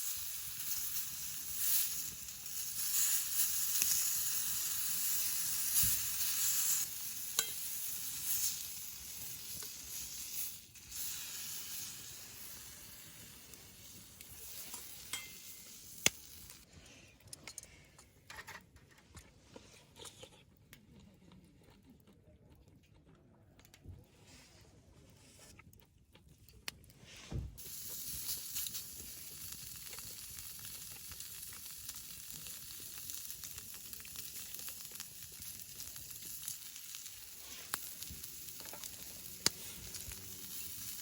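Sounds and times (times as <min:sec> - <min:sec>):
meat sizzling: 0:00.0 - 0:16.7, 0:27.6 - 0:41.0.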